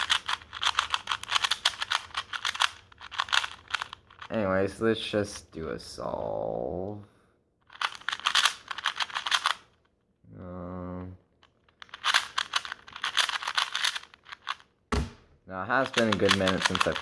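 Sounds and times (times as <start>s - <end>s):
rapid plastic cube clicking: 0.0s - 4.3s, 7.7s - 9.6s, 11.4s - 14.6s, 15.8s - 17.0s.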